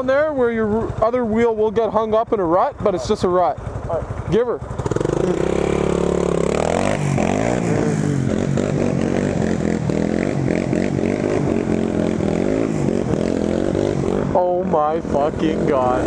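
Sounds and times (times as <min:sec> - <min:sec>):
atv engine revving hard: 0:04.7 - 0:16.0.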